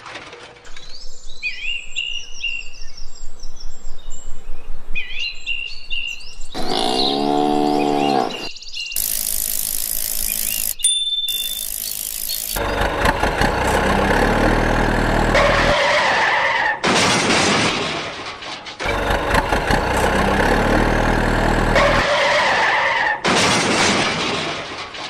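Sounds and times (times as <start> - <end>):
vehicle engine noise: 9.0 - 16.0, 18.8 - 22.3.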